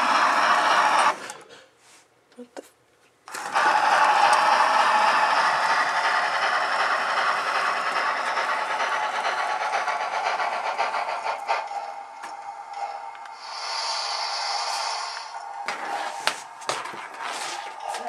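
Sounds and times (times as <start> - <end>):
model train wheels clattering: 0.0 - 1.6, 3.3 - 18.0
motor whine: 3.3 - 16.2.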